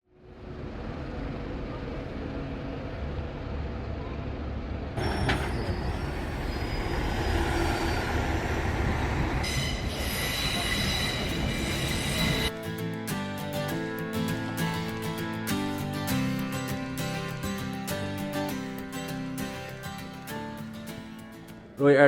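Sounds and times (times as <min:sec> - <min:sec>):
rail vehicle rumbling: 0:00.1 - 0:12.6
wheels squealing: 0:05.0 - 0:12.5
music: 0:11.1 - 0:22.0.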